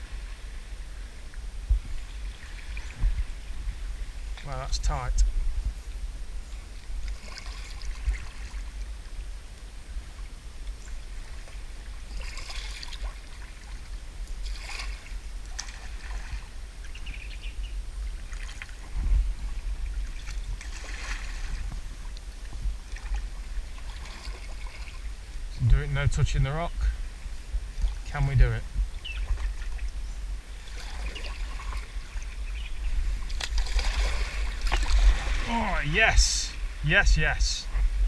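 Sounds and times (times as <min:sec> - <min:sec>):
paddle splashing in water: 0:06.5 - 0:08.8, 0:11.1 - 0:17.3, 0:18.2 - 0:25.2, 0:28.9 - 0:29.9, 0:30.5 - 0:36.8.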